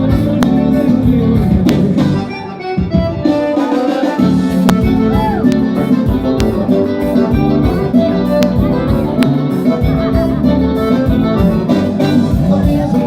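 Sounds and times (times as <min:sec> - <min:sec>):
bass: 0:00.0 - 0:03.3, 0:04.2 - 0:13.0
band playing instrumental music: 0:00.0 - 0:13.0
guitar: 0:00.0 - 0:13.0
drum hits: 0:04.4 - 0:09.4.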